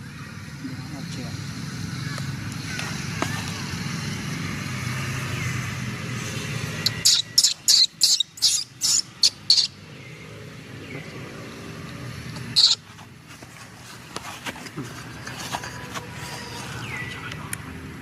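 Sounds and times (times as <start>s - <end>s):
baby monkey squeaking: 6.8s - 9.8s, 12.6s - 12.9s.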